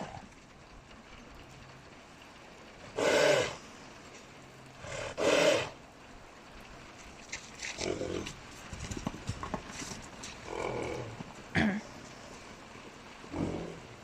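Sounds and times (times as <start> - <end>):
horse calls: 2.9 - 3.6, 4.8 - 5.8.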